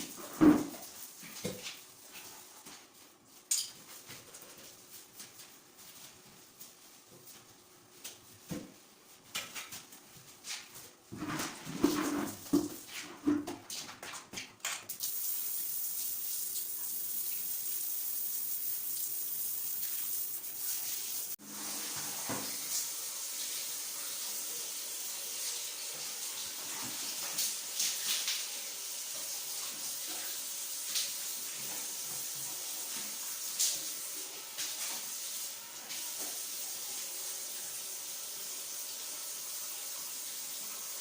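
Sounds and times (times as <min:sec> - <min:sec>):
water running from a tap: 0:14.9 - 0:41.0.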